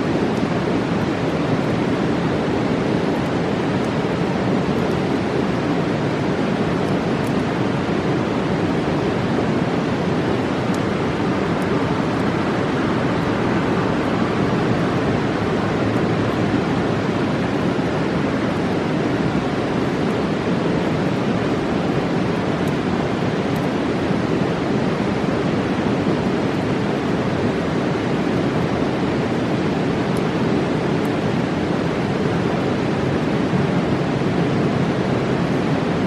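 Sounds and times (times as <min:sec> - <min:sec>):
river rushing: 0:00.0 - 0:36.0.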